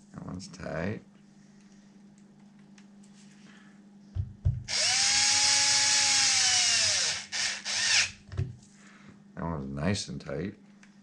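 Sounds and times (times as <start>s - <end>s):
power drill motor: 4.7s - 8.2s.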